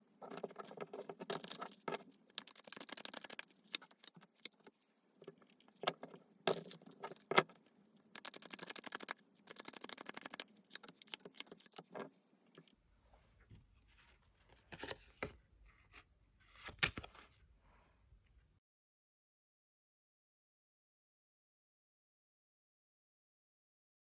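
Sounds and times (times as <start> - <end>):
cards being shuffled: 0.3 - 4.8, 6.5 - 7.6, 8.2 - 12.1.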